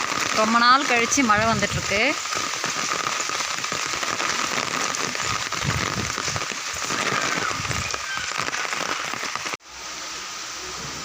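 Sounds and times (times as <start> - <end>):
heavy rain pattering: 0.0 - 11.0.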